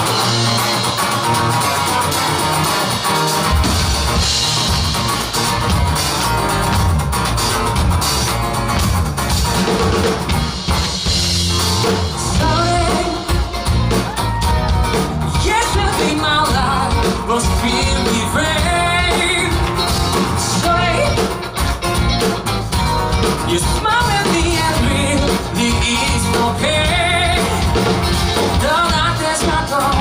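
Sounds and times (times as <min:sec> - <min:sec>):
live band music with guitar: 0:00.0 - 0:30.0
person singing: 0:12.2 - 0:21.4, 0:23.4 - 0:30.0.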